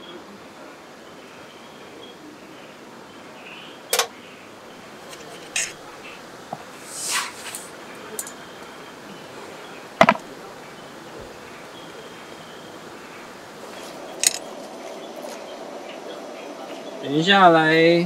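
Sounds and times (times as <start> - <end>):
utensils clicking and knocking: 5.1 - 5.8, 10.0 - 10.2, 14.2 - 14.5
stream hiss: 5.6 - 18.0
brief swish: 6.9 - 7.7.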